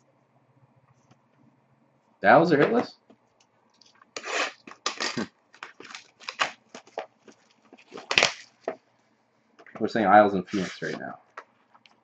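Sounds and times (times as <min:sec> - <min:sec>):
cards and packaging rustling: 0:04.6 - 0:08.8.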